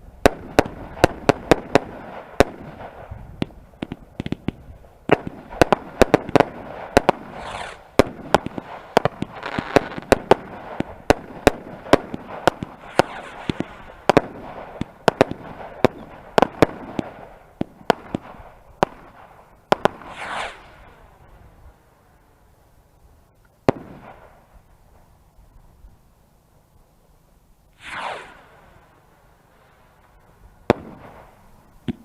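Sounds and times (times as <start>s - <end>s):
fireworks bangs: 0.2s - 21.6s, 23.6s - 24.5s, 27.8s - 29.0s, 29.9s - 32.0s
fireworks hissing: 3.1s - 11.1s, 11.8s - 16.2s, 19.2s - 21.7s, 27.8s - 32.0s.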